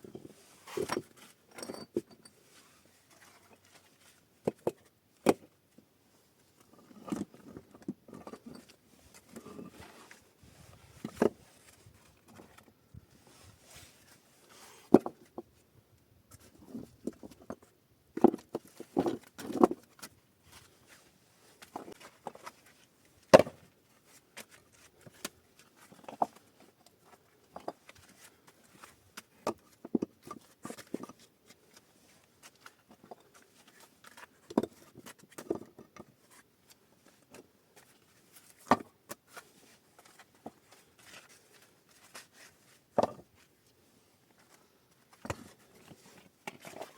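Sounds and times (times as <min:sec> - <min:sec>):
knocks and thuds of handling materials: 0:23.3 - 0:23.7, 0:38.6 - 0:38.9, 0:43.0 - 0:43.3.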